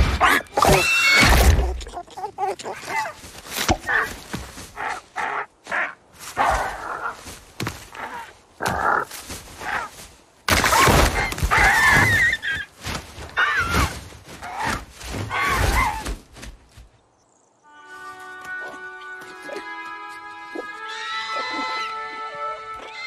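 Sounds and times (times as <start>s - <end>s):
music: 17.7s - 23.0s.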